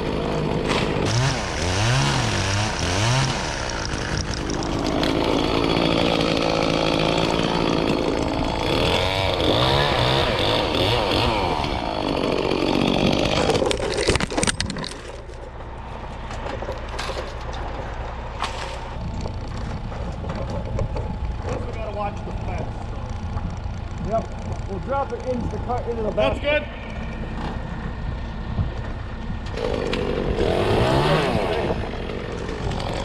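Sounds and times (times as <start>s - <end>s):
chainsaw cutting: 0.0s - 15.9s, 18.4s - 26.2s, 29.4s - 33.0s
low engine hum: 13.2s - 33.0s.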